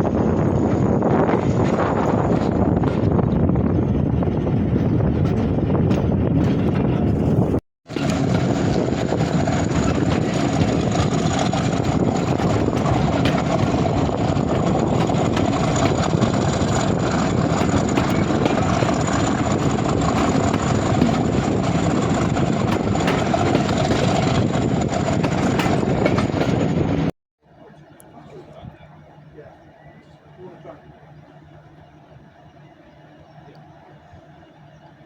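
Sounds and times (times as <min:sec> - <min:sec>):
diesel locomotive engine drone: 0:00.0 - 0:35.0
train wheels rolling on rails: 0:00.4 - 0:27.1.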